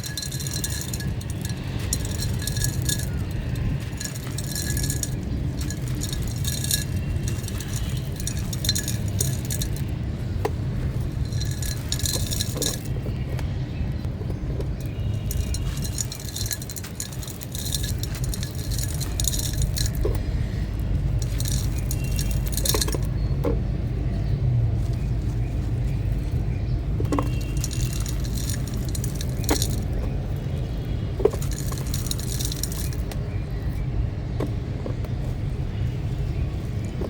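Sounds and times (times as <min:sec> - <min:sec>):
small hard pieces clinking: 0:00.0 - 0:13.4, 0:14.0 - 0:33.8
stony chunks crushed and crumbling: 0:00.0 - 0:23.9, 0:24.6 - 0:33.4.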